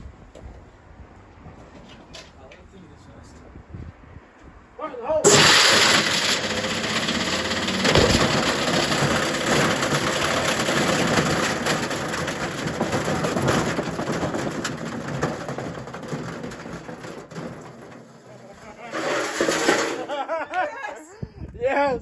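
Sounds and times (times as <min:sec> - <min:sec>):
metal rattling in drum: 0:05.2 - 0:20.3
washing machine running: 0:05.3 - 0:20.2.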